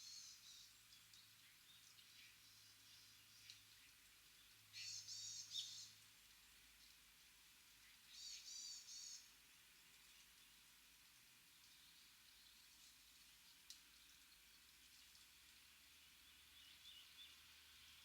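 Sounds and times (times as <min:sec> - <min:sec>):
small birds chirping: 0:00.0 - 0:06.0, 0:07.8 - 0:10.7, 0:16.0 - 0:18.0.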